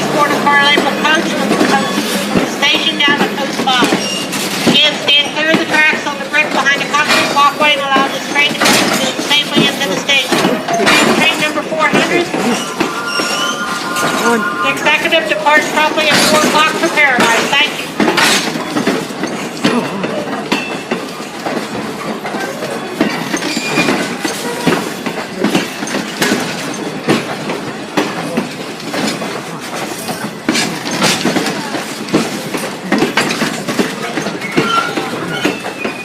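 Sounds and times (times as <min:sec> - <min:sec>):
train wheels clacking over joints: 0:00.0 - 0:36.0
faint wheel squeals: 0:34.3 - 0:36.0.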